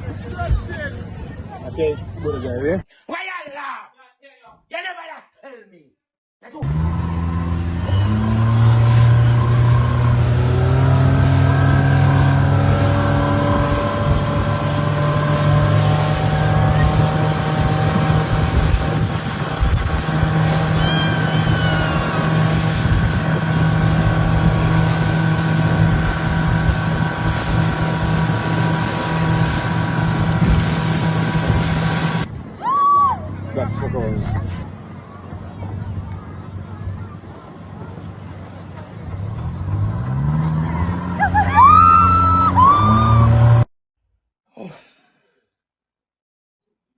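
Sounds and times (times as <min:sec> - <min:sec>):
motorboat engine: 0:06.6 - 0:43.6.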